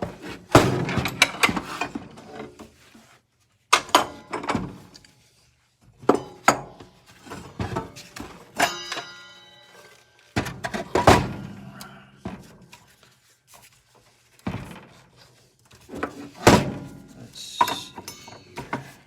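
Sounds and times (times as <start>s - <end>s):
hand tools clanking on metal: 6.1s - 12.0s, 16.0s - 19.0s
metallic hit ringing: 17.6s - 18.6s.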